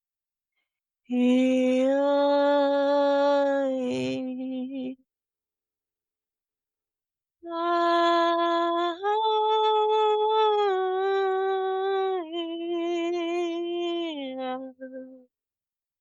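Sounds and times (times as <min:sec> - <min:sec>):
woman singing wordless tones: 0:01.1 - 0:05.1, 0:07.4 - 0:15.3.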